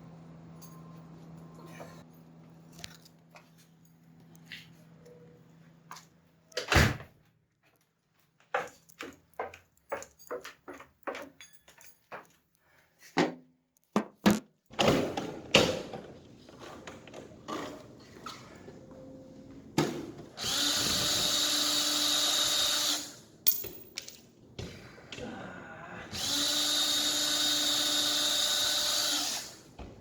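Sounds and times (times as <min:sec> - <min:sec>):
cordless power drill running: 0:20.4 - 0:23.2, 0:26.1 - 0:29.7.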